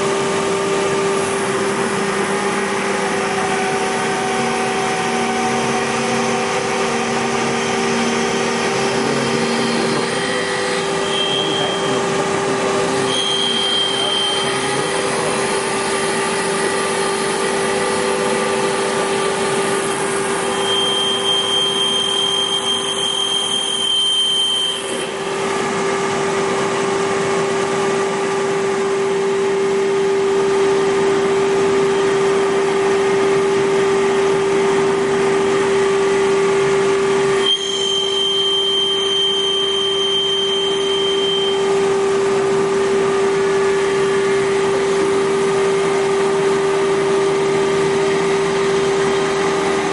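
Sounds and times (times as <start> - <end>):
wood-turning lathe humming: 0.0 - 24.0
high whine: 0.0 - 49.9.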